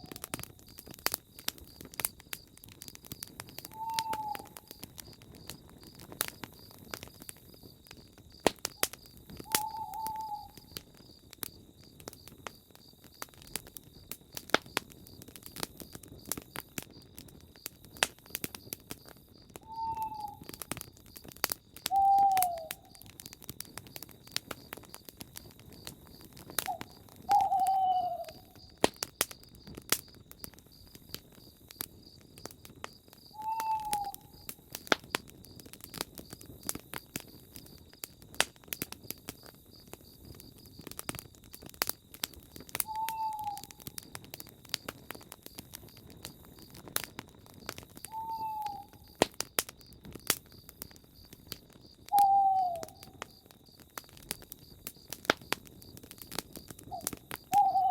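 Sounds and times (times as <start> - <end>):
campfire crackling and popping: 0.0 - 57.9
owl hooting: 3.7 - 4.7, 9.5 - 10.7, 19.6 - 20.5, 21.9 - 23.0, 26.7 - 28.6, 33.4 - 34.4, 42.8 - 43.7, 48.1 - 49.1, 52.1 - 53.2, 56.9 - 57.9.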